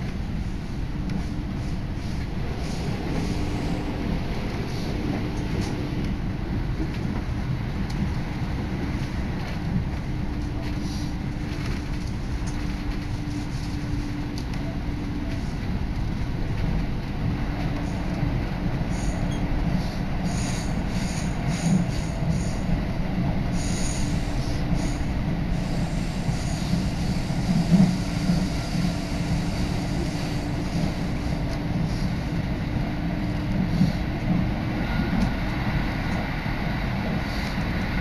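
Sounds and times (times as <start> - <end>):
train wheels rumbling on rails: 0.0 - 38.0
train bumps: 0.9 - 14.4.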